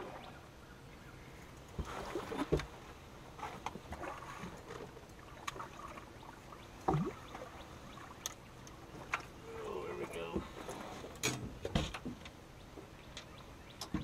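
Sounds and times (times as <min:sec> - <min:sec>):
water washing against hull: 0:01.7 - 0:12.2.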